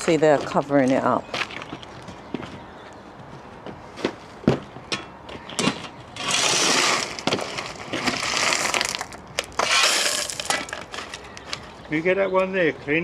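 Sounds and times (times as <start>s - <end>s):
gravel poured and scraped: 6.2s - 10.8s.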